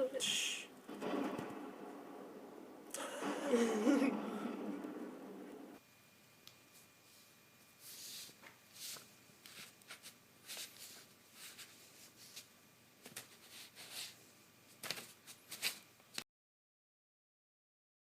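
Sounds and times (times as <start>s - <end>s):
rustling and scratching: 7.8s - 15.9s.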